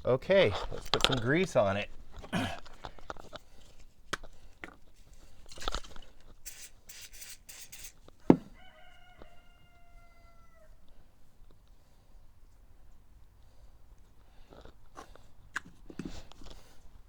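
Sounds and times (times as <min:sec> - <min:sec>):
clicks and rubbing of parts: 0:00.5 - 0:01.4, 0:02.1 - 0:08.2
rooster crowing: 0:08.4 - 0:10.8.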